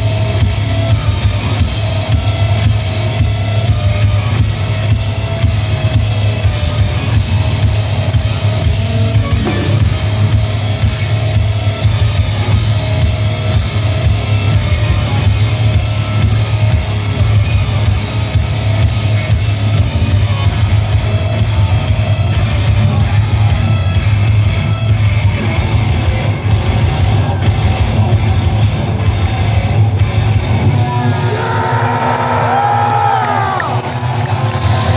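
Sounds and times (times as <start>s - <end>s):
heavy metal band playing live: 0.0s - 34.9s
crowd cheering and whooping: 31.0s - 34.9s.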